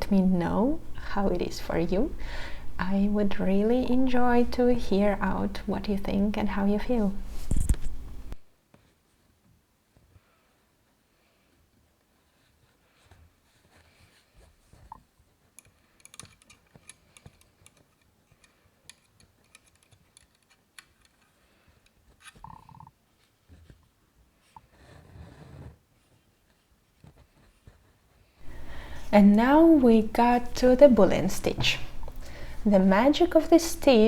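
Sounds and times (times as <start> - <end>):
fabric rustling: 7.0 - 9.5.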